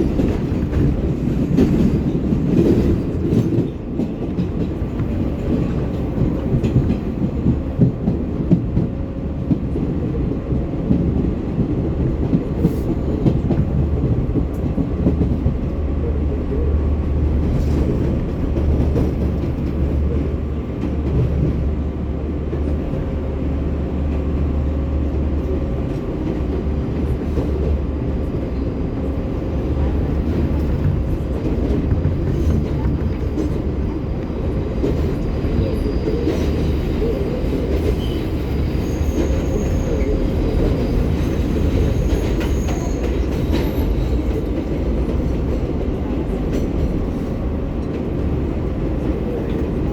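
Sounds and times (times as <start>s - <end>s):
train wheels rumbling on rails: 0.0s - 49.9s
sharp train clatter: 29.0s - 48.1s.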